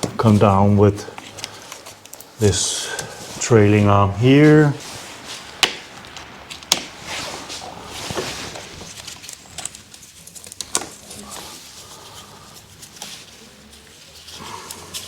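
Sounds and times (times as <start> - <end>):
tools and parts handling: 4.8 - 15.0.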